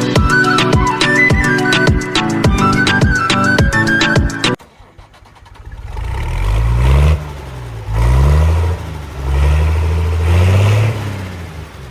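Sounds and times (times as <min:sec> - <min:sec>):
music: 0:00.0 - 0:04.6
engine revving: 0:04.6 - 0:11.9.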